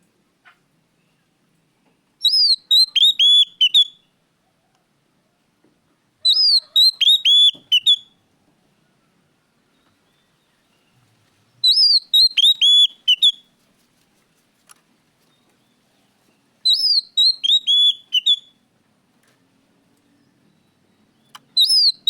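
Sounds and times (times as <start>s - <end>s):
bird whistling song: 2.2s - 4.1s, 6.2s - 8.2s, 11.6s - 13.4s, 16.6s - 18.6s, 20.5s - 22.0s.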